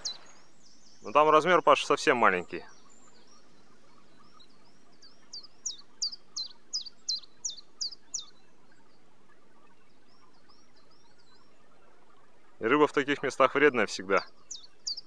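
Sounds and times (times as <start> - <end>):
songbird singing falling notes: 0.0 - 9.0, 12.6 - 15.0
steady background hiss: 0.0 - 15.0.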